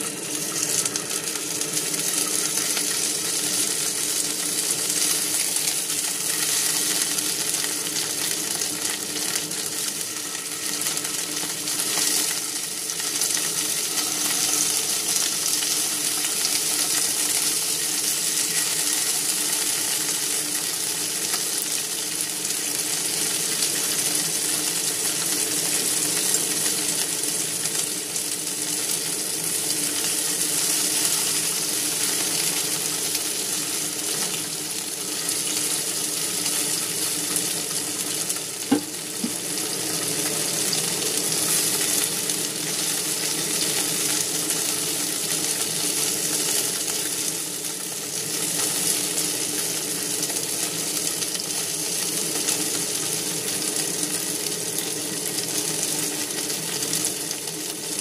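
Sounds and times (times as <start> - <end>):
chicken wings sizzling in pan: 0.0 - 58.0
chopsticks tapping pan: 38.7 - 39.4.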